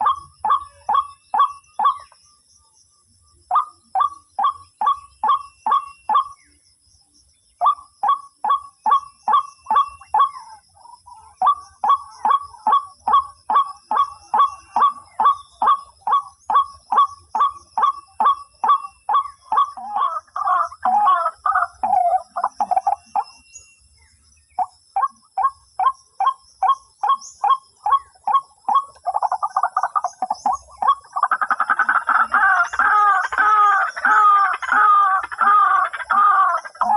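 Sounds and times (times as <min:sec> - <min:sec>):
waterhen calling: 0:11.4 - 0:23.3, 0:24.6 - 0:36.9.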